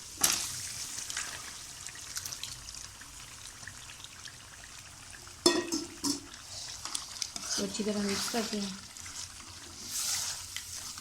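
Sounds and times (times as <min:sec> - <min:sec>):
chicken sizzling in hot oil: 0:00.0 - 0:11.0
frying hiss with crackles: 0:00.0 - 0:11.0.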